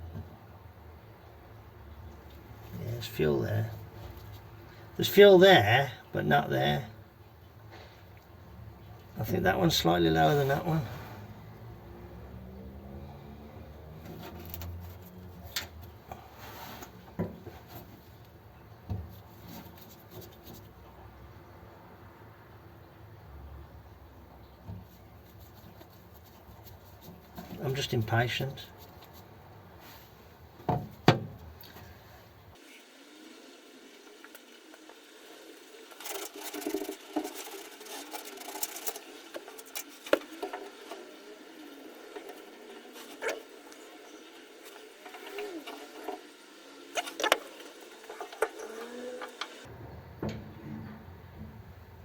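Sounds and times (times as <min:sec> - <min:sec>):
faint rubbing and scraping: 0:09.2 - 0:11.8, 0:14.0 - 0:18.2, 0:24.8 - 0:30.4, 0:35.6 - 0:49.7.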